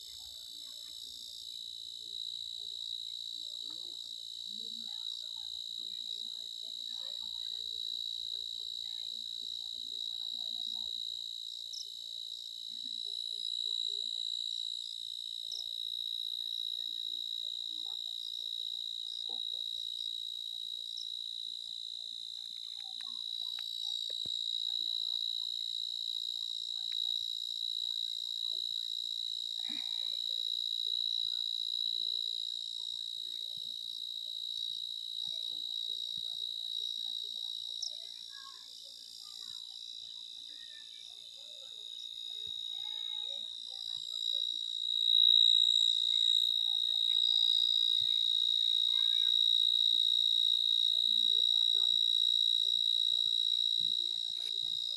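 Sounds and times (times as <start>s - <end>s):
insect chorus trilling: 37.5s - 54.9s.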